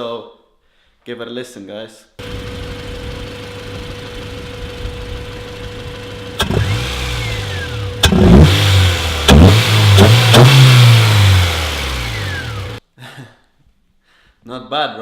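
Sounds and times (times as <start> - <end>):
car engine idling and revving: 2.2 - 12.8.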